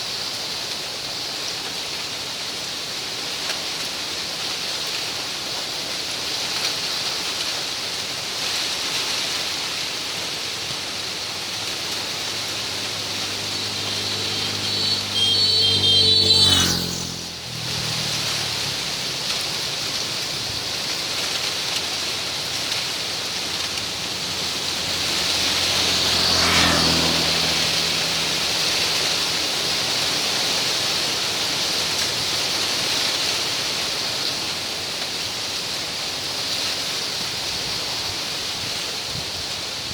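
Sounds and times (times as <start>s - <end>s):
vehicle passing: 9.7s - 32.6s.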